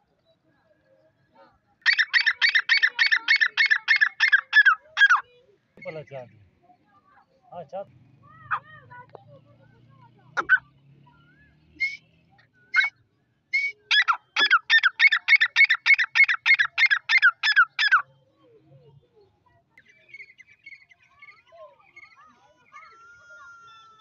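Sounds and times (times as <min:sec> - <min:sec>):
francolin calling: 0:01.8 - 0:06.1, 0:12.7 - 0:13.0, 0:13.6 - 0:18.1.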